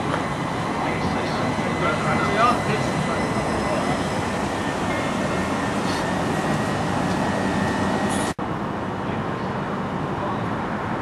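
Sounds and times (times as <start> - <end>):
thin high whine: 0.0 - 8.4
train rumbling past: 0.0 - 11.0.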